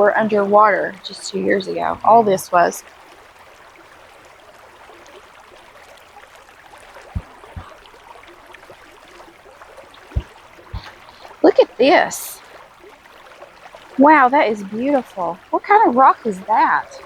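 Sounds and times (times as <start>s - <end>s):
soft low thumps: 7.0s - 7.9s, 10.0s - 11.5s.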